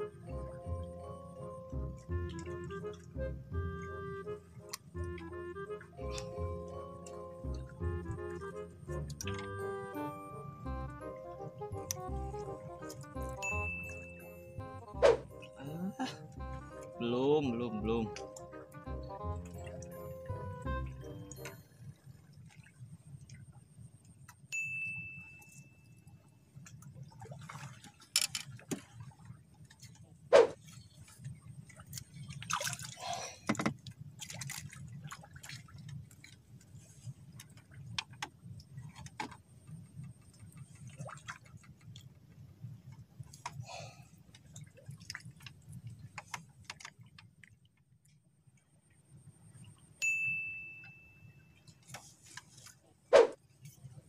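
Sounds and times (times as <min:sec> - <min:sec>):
low steady hum: 0:00.0 - 0:46.2
short high ding: 0:13.4 - 0:14.2, 0:24.6 - 0:25.8, 0:50.0 - 0:51.4
splashy rustle: 0:27.1 - 0:37.6.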